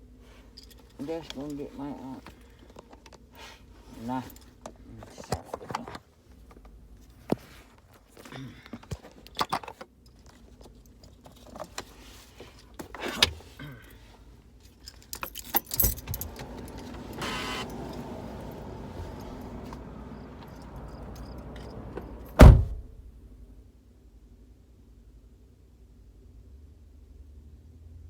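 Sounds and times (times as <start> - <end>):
keys jangling: 14.8 - 22.5
handling clicks and knocks: 14.9 - 22.9
car running hum: 15.6 - 23.4
heavy thump: 22.0 - 23.0.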